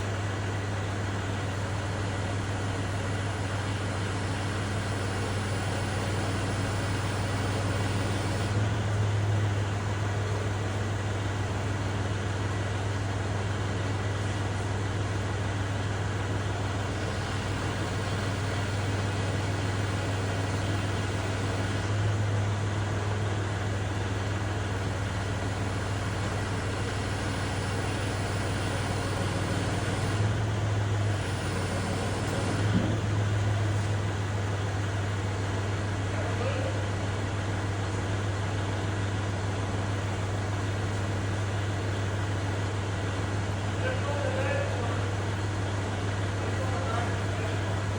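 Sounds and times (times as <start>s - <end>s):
tractor engine running: 0.0s - 36.0s.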